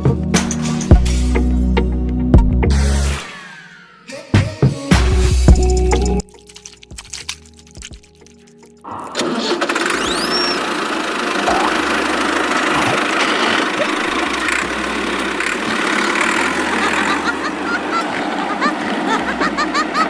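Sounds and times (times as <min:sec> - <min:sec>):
vehicle engine running: 0:09.7 - 0:20.0.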